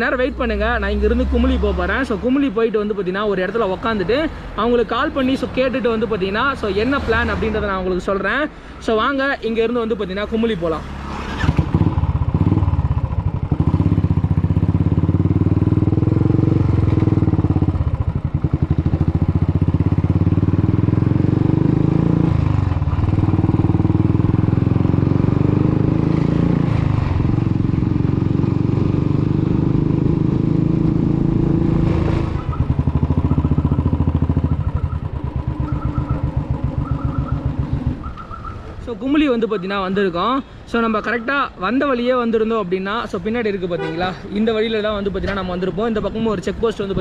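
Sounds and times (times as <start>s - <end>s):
motorcycle engine running: 11.4s - 38.5s.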